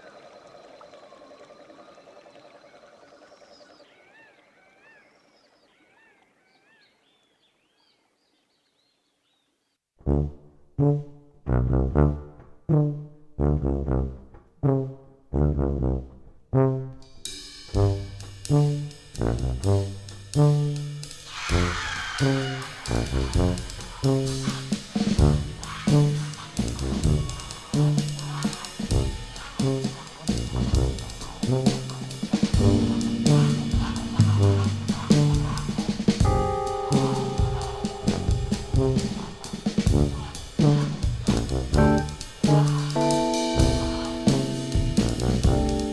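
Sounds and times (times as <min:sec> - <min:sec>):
jazz brass ensemble music: 0:10.0 - 0:45.9
cymbal crash: 0:21.2 - 0:45.9.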